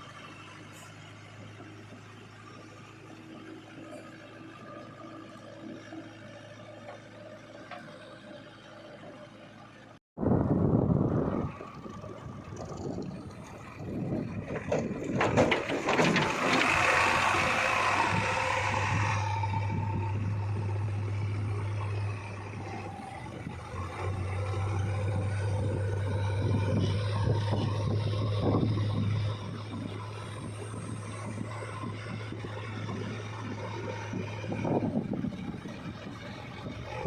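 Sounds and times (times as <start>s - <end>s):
diesel machinery engine hum: 0.0s - 37.0s
scraping and rattling: 14.1s - 20.2s.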